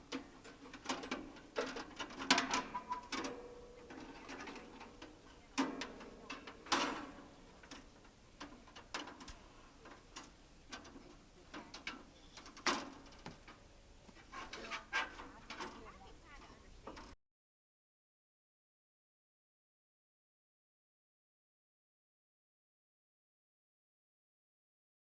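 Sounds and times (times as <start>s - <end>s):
metallic clicks and clanks: 0.0s - 13.7s, 14.3s - 17.2s.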